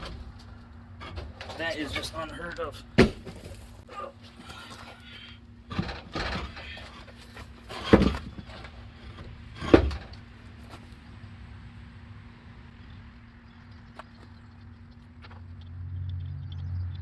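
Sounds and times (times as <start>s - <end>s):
knocks on truck wheels: 3.0s - 3.7s, 7.7s - 10.2s.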